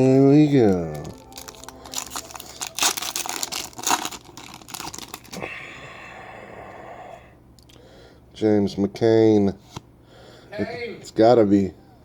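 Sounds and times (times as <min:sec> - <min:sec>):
foil wrapper tearing and crinkling: 0:00.5 - 0:05.4.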